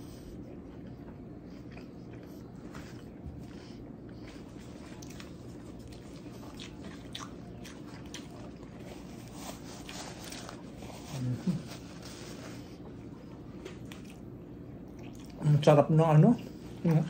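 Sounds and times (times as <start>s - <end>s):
close-up chewing: 0.0s - 15.5s
paper napkin rustling: 8.9s - 12.8s.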